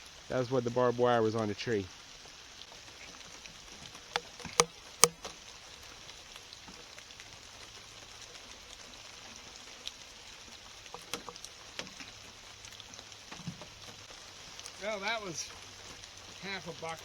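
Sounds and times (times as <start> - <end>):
sharp clicks: 4.0 - 5.3
heavy rain falling: 10.6 - 17.0.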